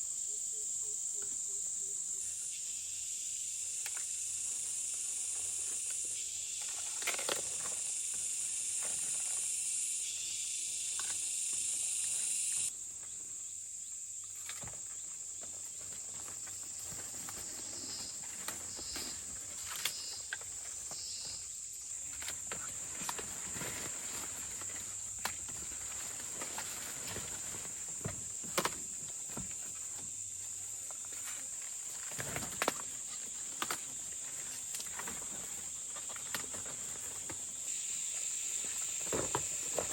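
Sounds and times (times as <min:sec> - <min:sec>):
insects droning: 0:00.0 - 0:39.9
crackles and rustles: 0:14.2 - 0:37.8.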